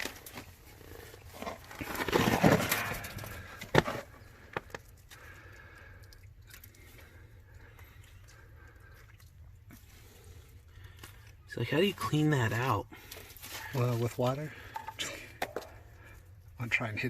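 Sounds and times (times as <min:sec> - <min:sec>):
rock pieces scraping crunch: 0:00.0 - 0:04.9.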